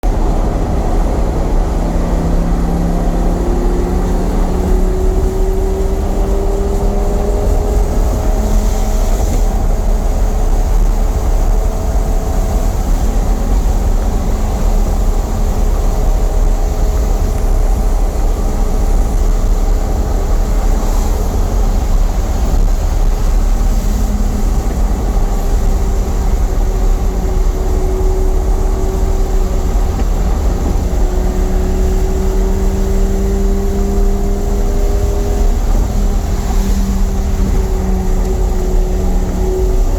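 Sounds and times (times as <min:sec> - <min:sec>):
car engine drone: 0:00.0 - 0:39.9
road and wind rumble: 0:00.0 - 0:39.9.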